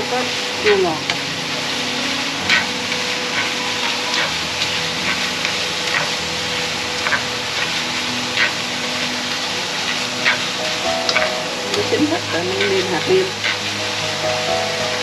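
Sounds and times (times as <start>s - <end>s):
shrimp and meat sizzling in pan: 0.0s - 15.0s
utensil scraping and clinking pan: 2.2s - 13.8s.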